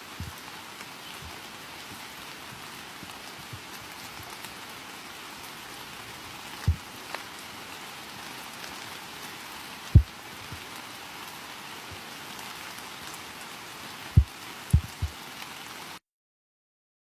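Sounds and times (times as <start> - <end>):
steady rain falling: 0.0 - 16.0
low thumps: 14.2 - 15.1.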